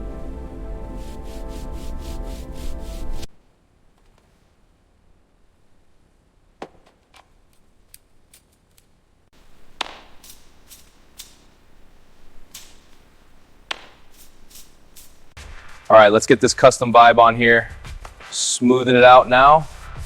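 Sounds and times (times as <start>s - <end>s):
faint hiss: 9.3s - 20.0s.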